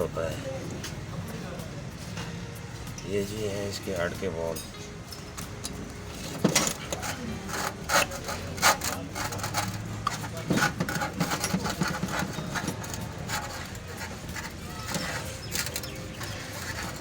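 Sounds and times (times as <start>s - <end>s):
metal valves clinking and tapping: 4.6s - 17.0s.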